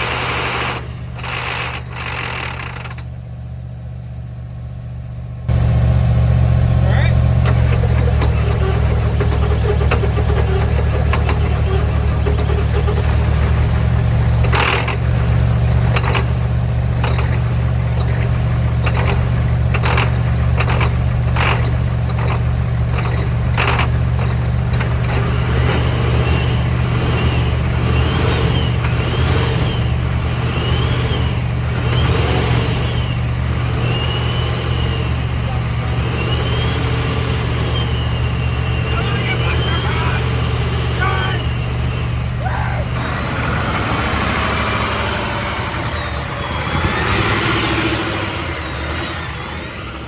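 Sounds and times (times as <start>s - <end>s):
engine knocking: 0.0s - 3.2s, 6.7s - 42.2s
diesel engine running: 0.0s - 50.0s.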